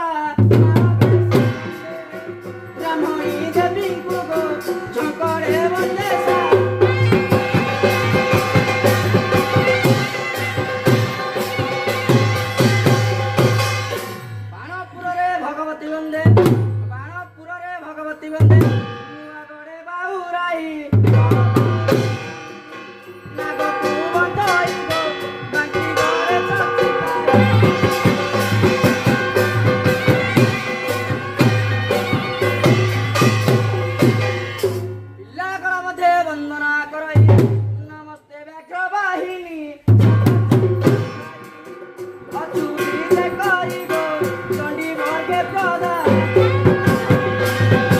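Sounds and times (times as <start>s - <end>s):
drum strokes: 0.4s - 14.6s, 20.9s - 35.2s, 39.8s - 47.9s
held melody notes: 0.7s - 15.9s, 21.0s - 36.1s, 40.0s - 47.9s.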